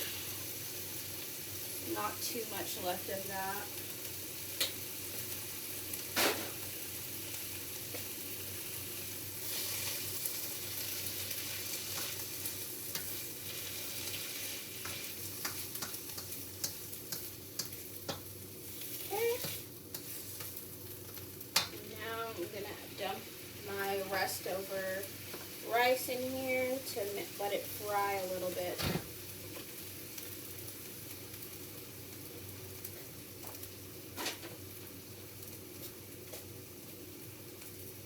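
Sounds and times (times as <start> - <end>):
vegetables sizzling in a pan: 0.0 - 38.0
utensil stirring clicks and scrapes: 14.0 - 18.2, 19.4 - 20.6.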